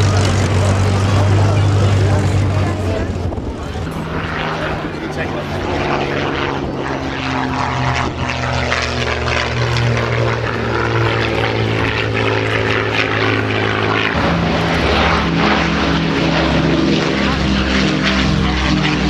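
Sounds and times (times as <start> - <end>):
propeller plane engines droning: 0.0 - 19.0.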